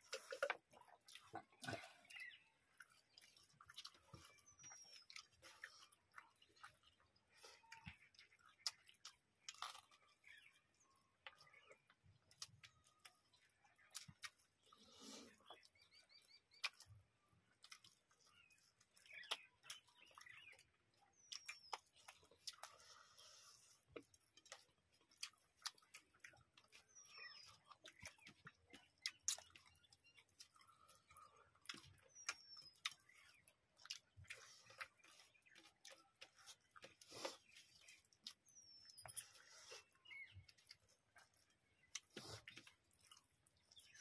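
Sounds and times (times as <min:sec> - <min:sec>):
chewing and mouth smacks: 0:00.0 - 0:44.0.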